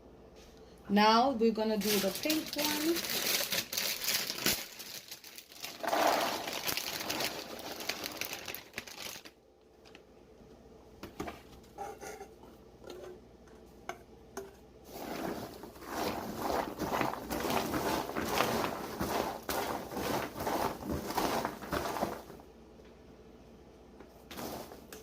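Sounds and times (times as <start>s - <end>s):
popcorn rustling and crunching: 1.7s - 10.1s, 14.9s - 22.5s, 24.1s - 25.0s.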